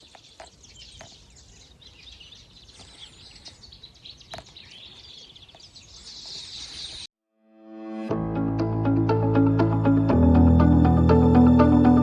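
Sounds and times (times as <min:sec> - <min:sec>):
small birds singing and chirping: 0:00.0 - 0:07.1.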